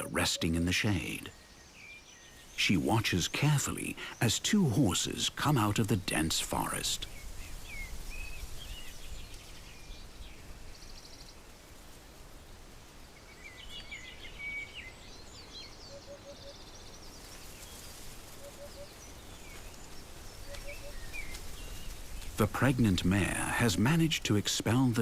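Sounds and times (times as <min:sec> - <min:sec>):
low steady background hush: 0:00.0 - 0:25.0
songbirds chirping and whistling: 0:00.0 - 0:25.0
bird trill: 0:13.5 - 0:16.9, 0:18.3 - 0:19.7, 0:20.4 - 0:22.0.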